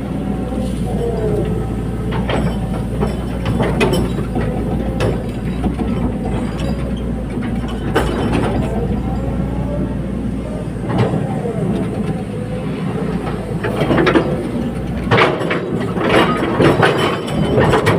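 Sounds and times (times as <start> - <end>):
excavator diesel engine: 0.0 - 17.9
metallic clanks and clicks: 2.1 - 8.9, 13.6 - 17.9.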